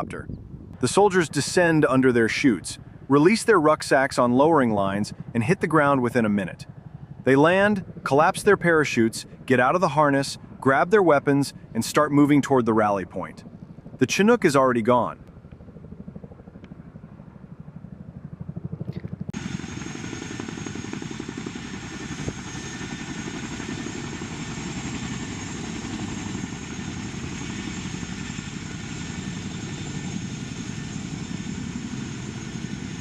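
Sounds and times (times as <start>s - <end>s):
helicopter rotors beating: 0.0s - 33.0s
turbine rush with high whine: 18.7s - 33.0s.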